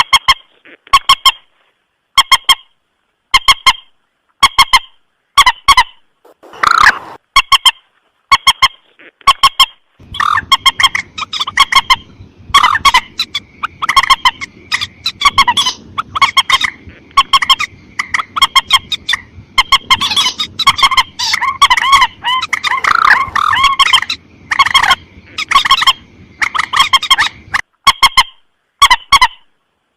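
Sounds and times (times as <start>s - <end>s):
faint background hiss: 0.0s - 29.9s
rail bird calling: 3.4s - 8.8s, 9.4s - 29.4s.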